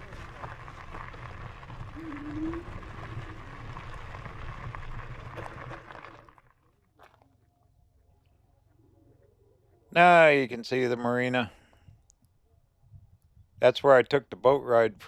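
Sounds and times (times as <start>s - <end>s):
bike trail noise: 0.0s - 6.4s
wind rumble on microphone: 12.8s - 13.6s.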